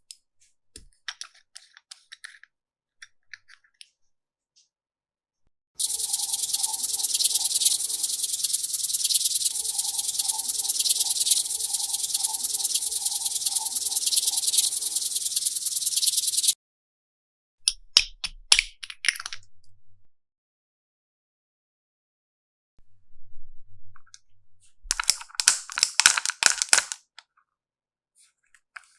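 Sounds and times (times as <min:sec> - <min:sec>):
sharp clicks and taps: 0:24.9 - 0:27.0
slime crackling and popping: 0:24.9 - 0:27.0.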